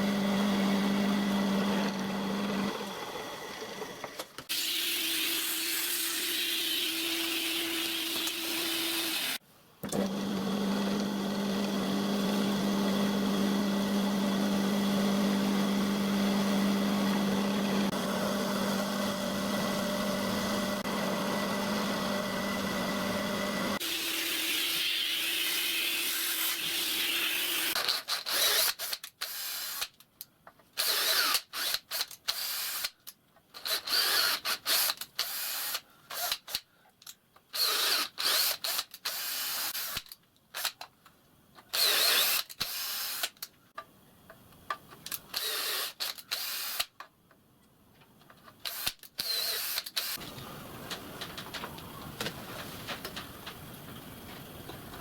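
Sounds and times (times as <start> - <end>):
workshop machine humming: 0.0 - 4.4, 9.9 - 23.9
power drill bursts: 41.7 - 43.3, 45.3 - 46.9, 48.7 - 50.4.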